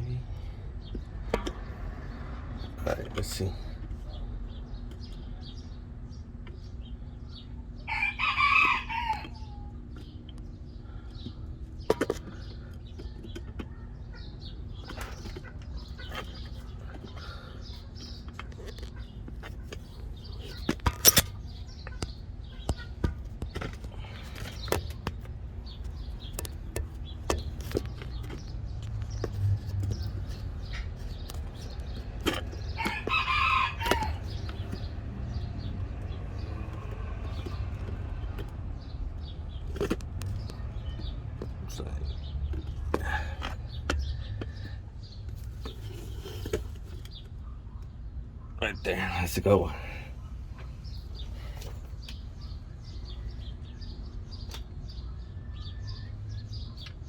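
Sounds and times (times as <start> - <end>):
rooster crowing: 7.8 - 9.7, 32.8 - 34.3.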